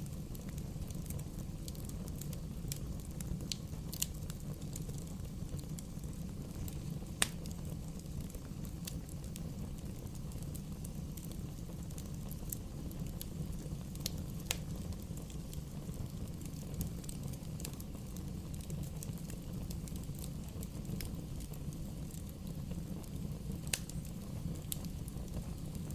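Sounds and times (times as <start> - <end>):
fire crackling pops: 0.0 - 25.9
low rumble of wood fire: 0.0 - 25.9.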